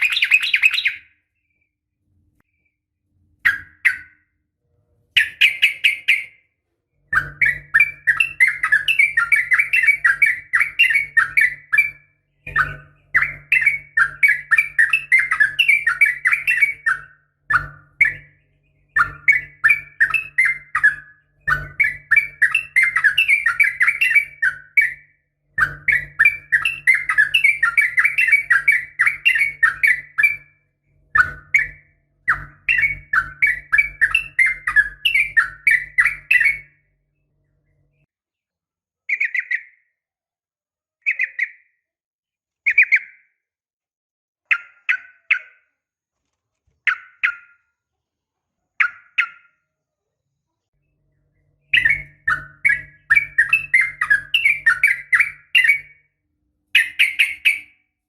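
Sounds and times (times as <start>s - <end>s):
bulbul fast chattering calls: 0.0s - 1.0s.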